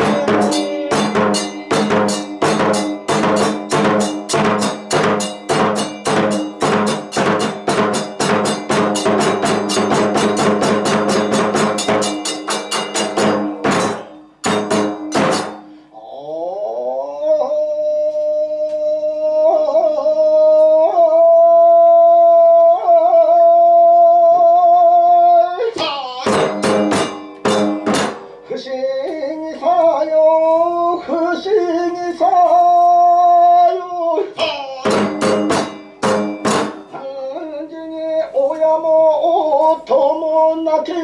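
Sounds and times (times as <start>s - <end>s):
chant on long held notes: 0.0s - 3.1s
drum and cymbal strikes: 0.0s - 15.9s, 26.2s - 28.5s, 34.4s - 37.0s.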